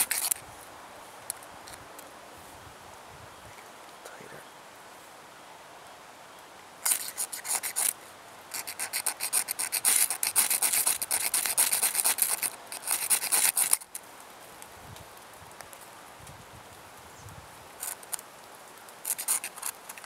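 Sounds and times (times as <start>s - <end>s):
flint striker rasping: 0.0s - 0.4s, 6.8s - 14.0s, 19.0s - 20.0s.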